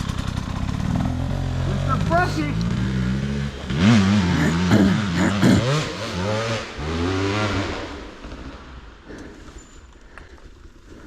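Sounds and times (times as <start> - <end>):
dirt bike engine revving: 0.0 - 8.7.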